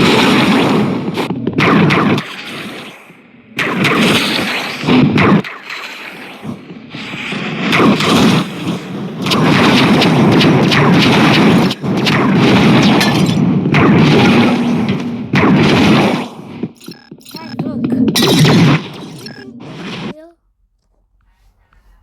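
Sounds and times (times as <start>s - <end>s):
deep booming rumble with crackle: 6.4s - 17.1s.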